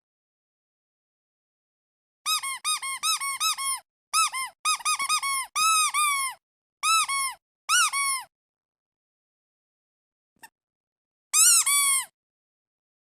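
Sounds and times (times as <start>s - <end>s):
squeaky duck toy squeaking: 2.3s - 8.3s, 11.4s - 12.2s.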